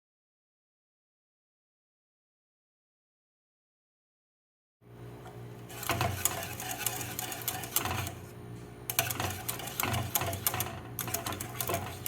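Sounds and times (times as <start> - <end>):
steady low hum: 4.9 - 12.0.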